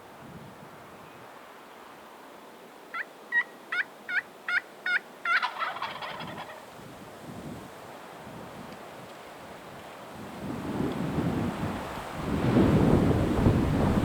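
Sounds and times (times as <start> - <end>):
wind noise: 0.0 - 1.3, 5.9 - 14.0
turkey rattling gobble: 2.9 - 6.7
turkey yelps: 2.9 - 6.7.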